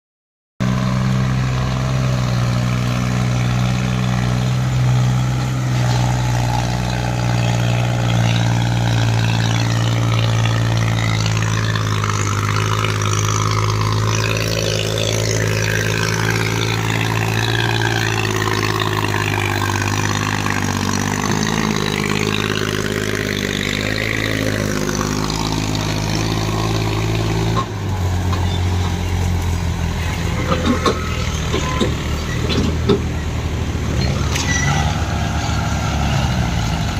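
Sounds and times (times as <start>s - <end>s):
tractor diesel engine running: 0.6s - 36.9s.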